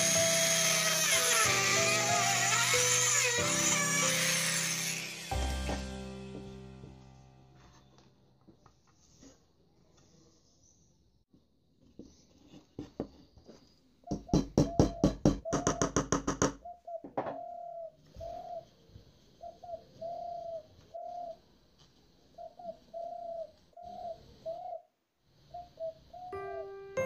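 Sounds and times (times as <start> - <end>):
dove cooing: 16.6 - 18.7, 19.4 - 21.4, 22.4 - 24.8, 25.5 - 26.8.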